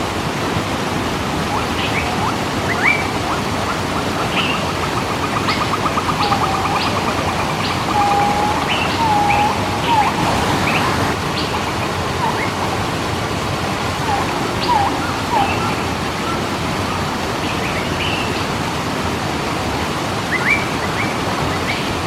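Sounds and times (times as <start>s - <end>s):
waterfall rushing: 0.0s - 22.0s
bird trilling: 1.5s - 16.4s
birds chirping and whistling: 1.5s - 16.5s.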